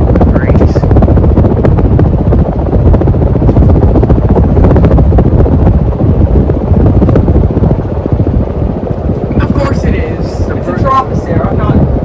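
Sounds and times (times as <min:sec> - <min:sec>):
ceiling fan wind buffeting microphone: 0:00.0 - 0:12.0.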